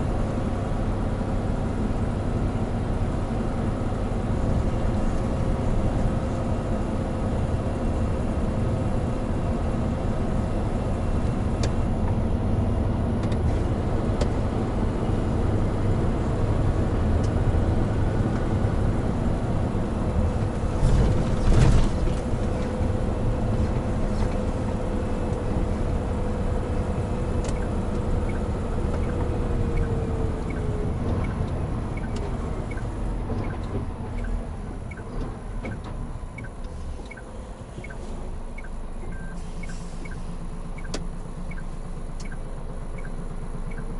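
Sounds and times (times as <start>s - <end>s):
truck diesel engine rumble: 0.0s - 43.9s.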